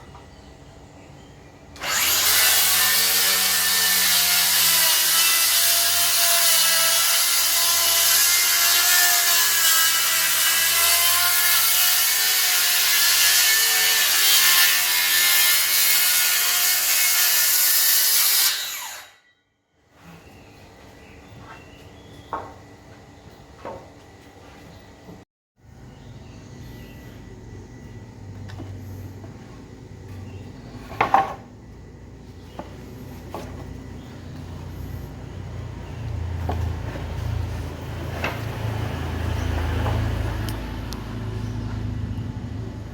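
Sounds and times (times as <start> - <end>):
circular saw cutting wood: 1.8 - 19.3.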